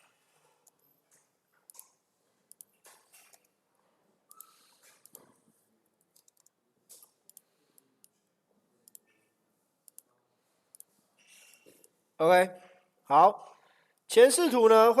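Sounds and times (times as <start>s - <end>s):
faint computer mouse clicks: 6.1s - 8.2s, 8.8s - 9.2s.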